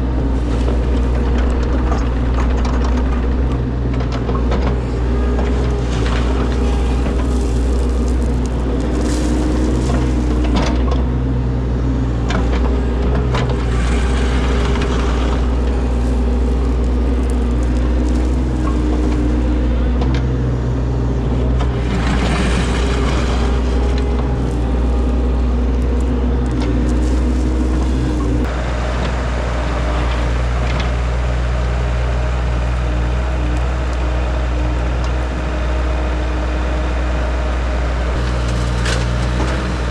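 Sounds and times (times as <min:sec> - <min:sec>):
diesel engine of digger: 0:00.0 - 0:39.9
scraping: 0:00.2 - 0:28.6.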